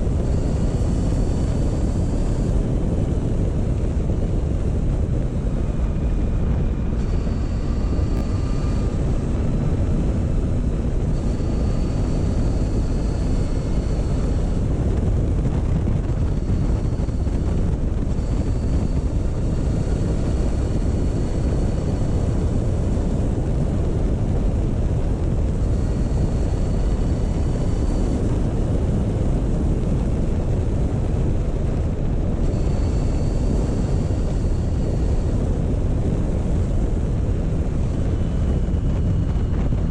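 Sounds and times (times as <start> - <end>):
faint high whine: 0.0 - 39.9
wind rumbling on microphone: 0.0 - 39.9.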